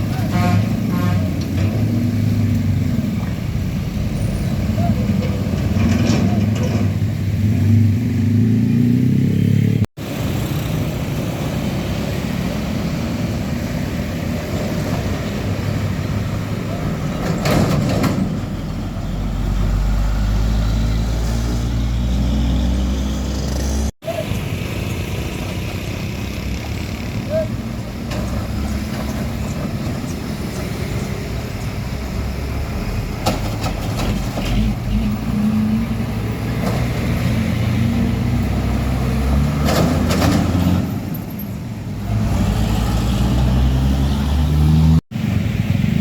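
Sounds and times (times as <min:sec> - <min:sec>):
diesel trucks engine rumble: 0:00.0 - 0:46.0
vehicle passing by: 0:07.2 - 0:17.3, 0:42.0 - 0:46.0.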